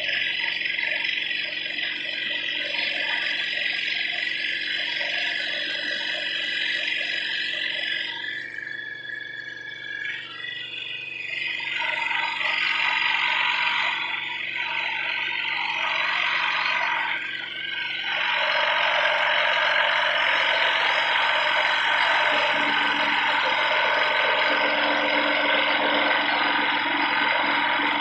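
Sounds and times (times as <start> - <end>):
scroll saw buzzing: 9.8 - 28.0.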